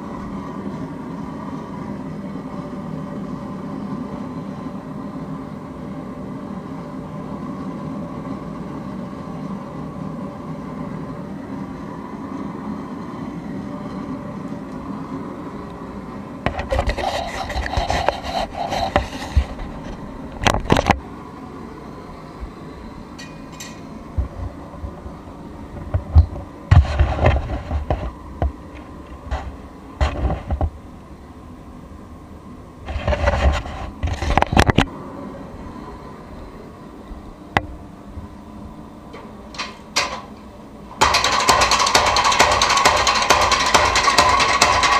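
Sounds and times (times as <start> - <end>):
machine hum: 0.0 - 44.9
rough scraping and rubbing: 16.5 - 20.9, 32.8 - 34.8
sharp knocks: 41.0 - 44.9.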